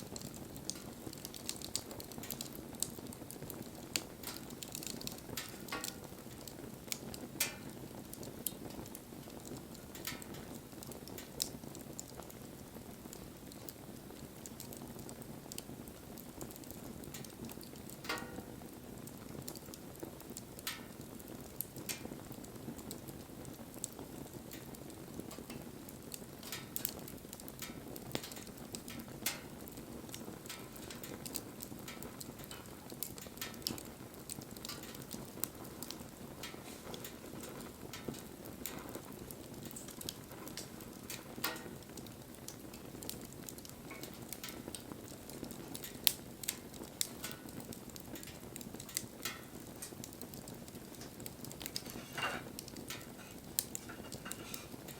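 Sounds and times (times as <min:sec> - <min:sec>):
bonfire flame rushing: 0:00.0 - 0:54.9
burning wood crackling and popping: 0:00.0 - 0:54.9.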